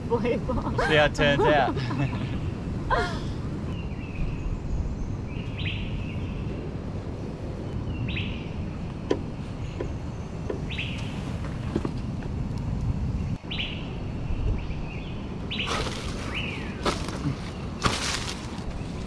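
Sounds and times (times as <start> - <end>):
bird chirping: 3.7 - 6.7, 7.6 - 11.3, 13.2 - 19.0
palm fronds rustling: 15.5 - 19.0.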